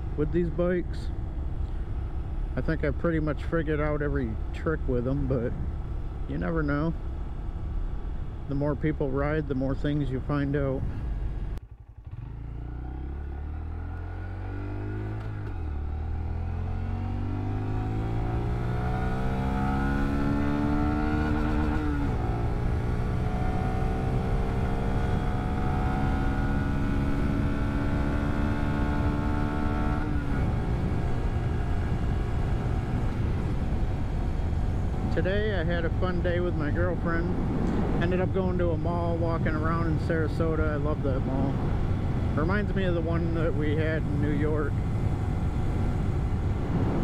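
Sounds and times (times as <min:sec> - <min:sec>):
motorcycle engine accelerating: 0:10.9 - 0:47.0.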